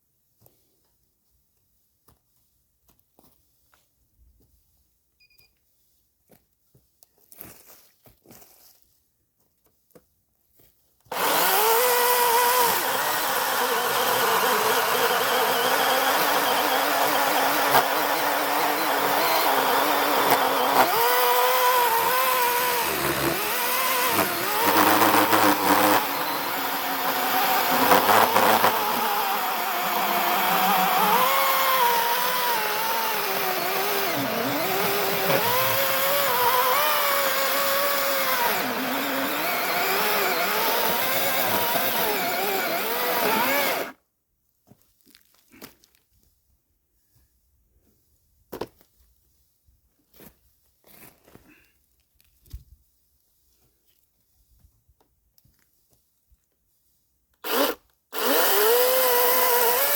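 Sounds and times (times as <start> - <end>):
small petrol engine running: 11.1 - 43.9.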